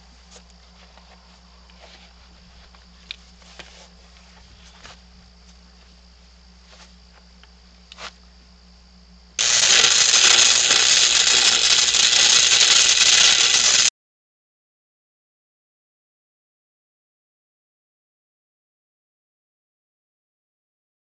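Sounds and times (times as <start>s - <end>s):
faint clicks and ticks: 9.4s - 13.9s
welding arc crackling: 9.4s - 13.9s.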